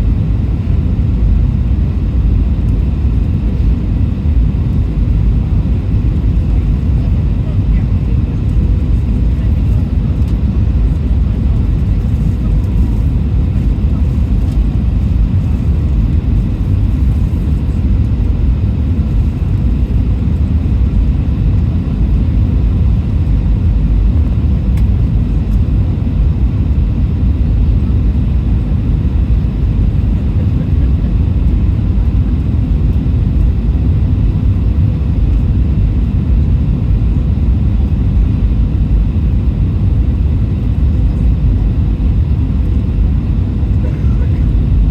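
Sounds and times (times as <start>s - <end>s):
airliner cabin engine rumble: 0.0s - 44.9s.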